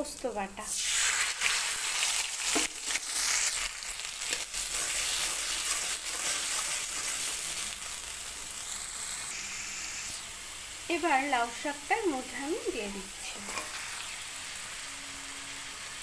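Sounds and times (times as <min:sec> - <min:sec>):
paste sizzling in hot oil: 0:00.0 - 0:16.0
spatula scraping and stirring: 0:04.2 - 0:07.7, 0:13.2 - 0:14.2.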